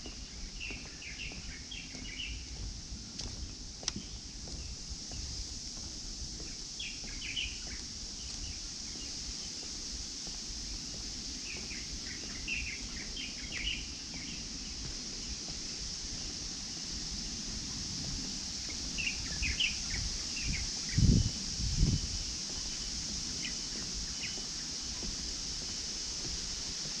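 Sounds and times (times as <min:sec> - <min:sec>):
small birds chirping: 0:00.0 - 0:02.7, 0:06.4 - 0:09.9, 0:10.6 - 0:16.4, 0:18.6 - 0:26.6
insects droning: 0:00.0 - 0:27.0.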